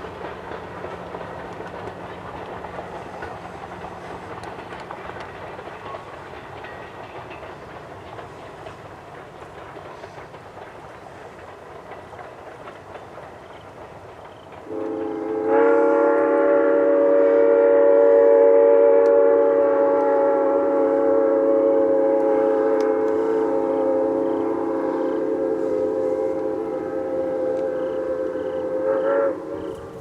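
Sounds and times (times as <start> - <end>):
steam locomotive rolling: 0.0 - 30.0
train whistle chord: 14.7 - 30.0.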